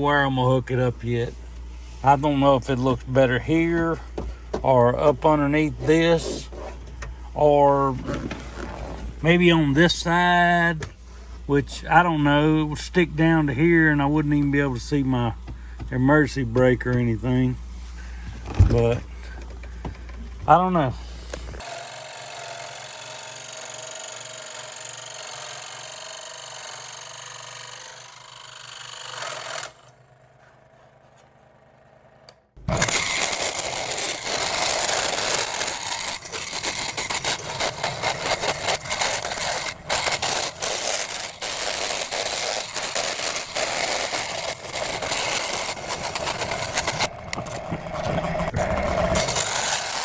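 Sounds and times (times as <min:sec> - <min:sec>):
power tool grinding and rattling: 0:00.0 - 0:11.0, 0:21.4 - 0:30.2, 0:32.6 - 0:50.0.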